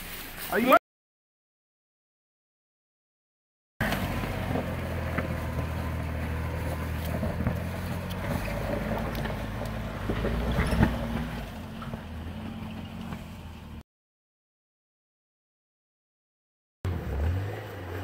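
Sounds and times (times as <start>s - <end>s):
car engine running at low revs: 3.8s - 13.8s.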